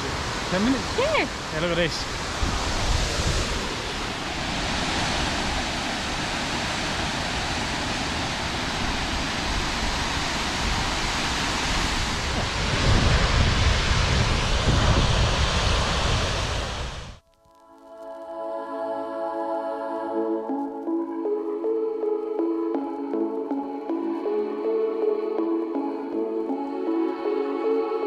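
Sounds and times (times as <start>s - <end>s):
waterfall rushing: 0.0s - 17.1s
wind rumbling on microphone: 0.0s - 17.2s.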